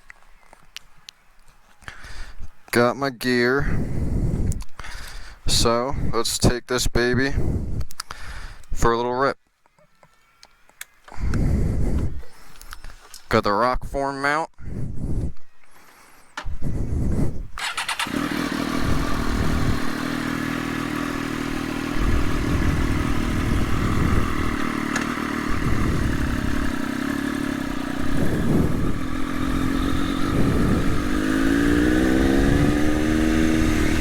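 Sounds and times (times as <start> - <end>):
motorcycle engine idling and revving: 16.4 - 34.0.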